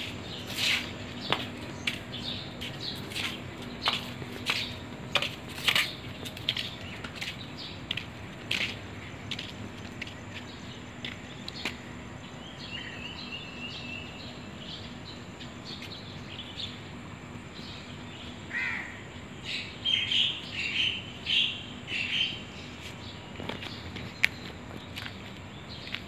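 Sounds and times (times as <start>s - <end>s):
steady background noise: 0.0s - 26.0s
birds chirping and calling: 17.6s - 26.0s.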